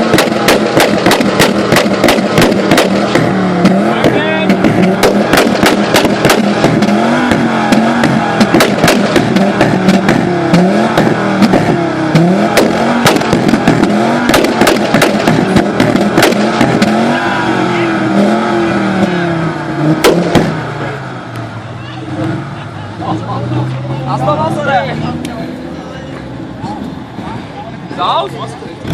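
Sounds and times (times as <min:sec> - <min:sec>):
exhaust pops and bangs: 0:00.0 - 0:17.2, 0:19.9 - 0:20.6
car engine revving: 0:00.0 - 0:28.9.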